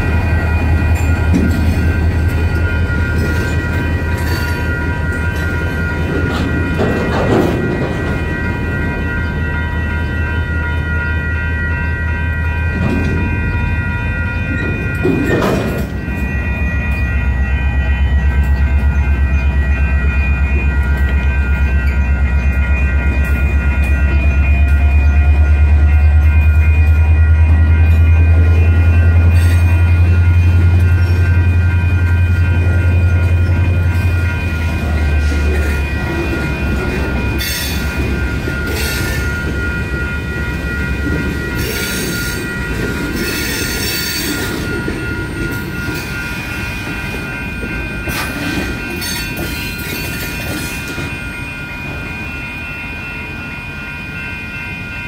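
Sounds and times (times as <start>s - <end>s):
freight cars rumbling and clattering: 0.0s - 11.0s, 12.5s - 17.0s
crossing bells ringing: 0.0s - 55.0s.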